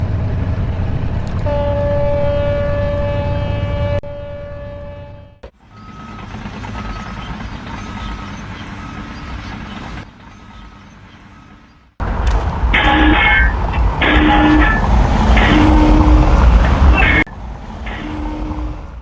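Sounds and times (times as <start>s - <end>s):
long horn blast: 1.4s - 5.4s, 12.8s - 19.0s
engine running: 5.4s - 19.0s
heavy machinery rumbling: 5.4s - 19.0s
reversing alarm beeping: 5.7s - 9.4s.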